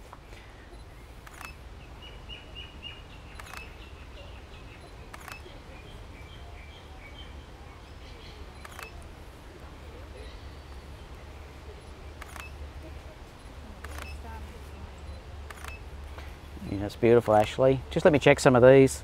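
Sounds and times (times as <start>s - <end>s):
faint bird chirps: 0.3s - 9.1s
camera shutter clicks: 1.2s - 1.6s, 3.4s - 3.7s, 5.1s - 5.5s, 8.6s - 9.1s, 12.2s - 12.6s, 13.8s - 14.2s, 15.4s - 15.8s.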